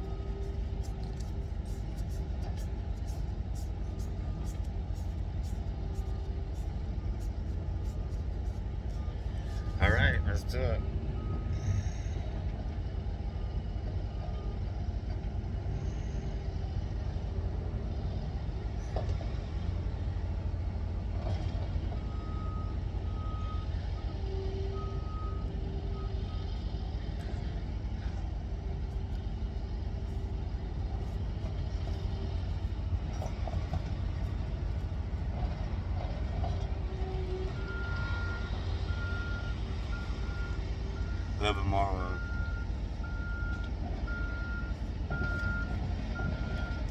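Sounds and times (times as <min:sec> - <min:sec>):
vehicle rumble: 0:00.0 - 0:46.9
reversing alarm beeps: 0:22.0 - 0:26.5, 0:37.5 - 0:46.9.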